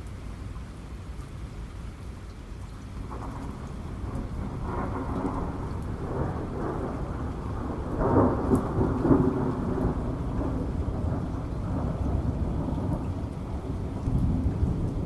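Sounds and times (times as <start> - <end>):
steady rain: 0.0 - 15.0
thunder rumble: 3.0 - 15.0.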